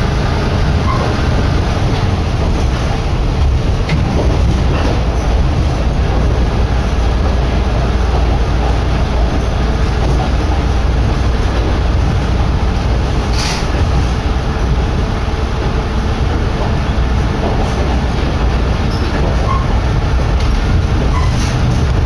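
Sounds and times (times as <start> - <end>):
railcar engine and wheels rumbling: 0.0 - 22.0
wind buffeting microphone: 0.0 - 22.0
brief hiss: 13.3 - 13.7.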